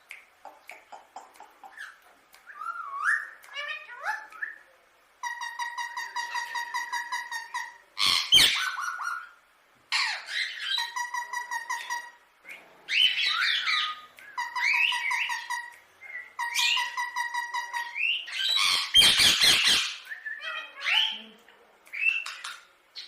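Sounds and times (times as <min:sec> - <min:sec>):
parakeet chattering calls: 0:05.2 - 0:12.2, 0:12.9 - 0:21.2
parakeet harsh squawk: 0:05.2 - 0:12.2, 0:17.7 - 0:21.2.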